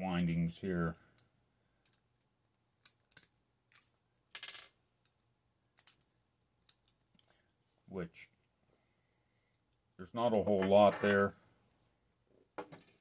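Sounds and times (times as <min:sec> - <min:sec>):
metal parts clicking: 0:02.8 - 0:04.7.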